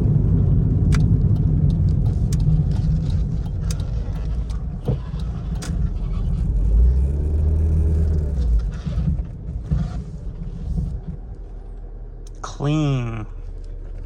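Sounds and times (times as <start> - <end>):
car engine: 0.0 - 14.0
road rumble: 0.0 - 14.0
sharp clicks: 0.8 - 5.9.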